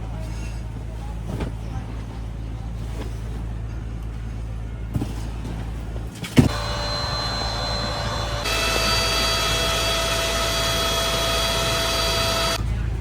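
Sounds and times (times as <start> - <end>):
low motor hum: 0.0 - 13.0
higher-pitched machine hum: 6.4 - 12.6.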